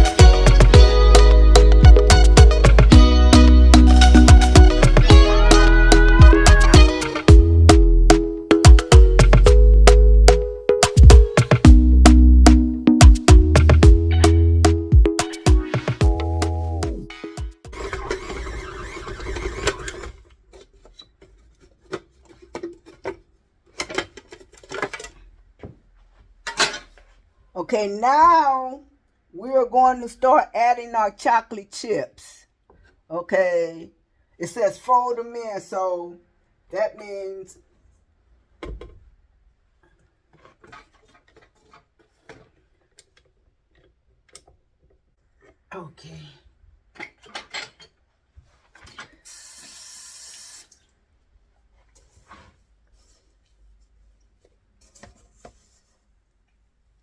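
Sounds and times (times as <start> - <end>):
background music: 0.0 - 17.8.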